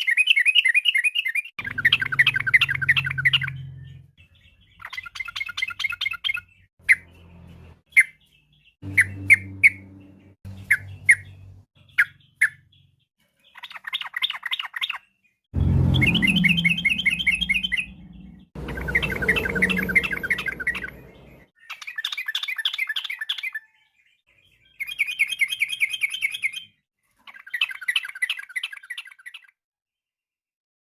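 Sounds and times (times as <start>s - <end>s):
low rumble: 15.6s - 21.5s.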